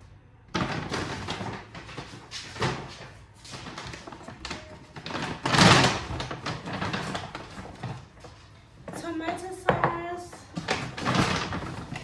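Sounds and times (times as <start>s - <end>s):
packaging rustling and knocking: 0.5s - 8.9s, 9.7s - 12.0s.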